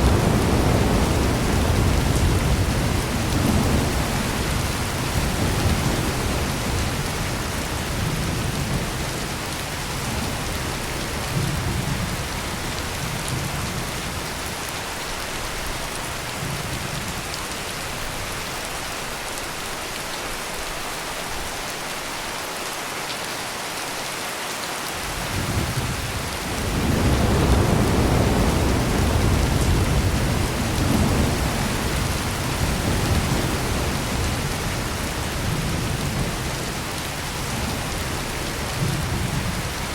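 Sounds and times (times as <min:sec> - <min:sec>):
rolling thunder: 0:00.0 - 0:14.2, 0:25.1 - 0:39.9
heavy rain pouring: 0:00.0 - 0:39.9.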